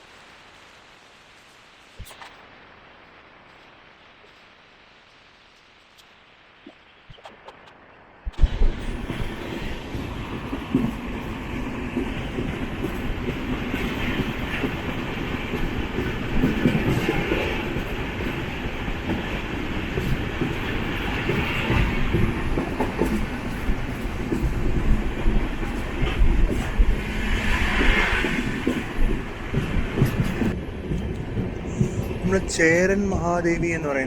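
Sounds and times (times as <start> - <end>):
train rumbling: 8.1 - 34.0
train wheels clickety-clack: 8.4 - 34.0.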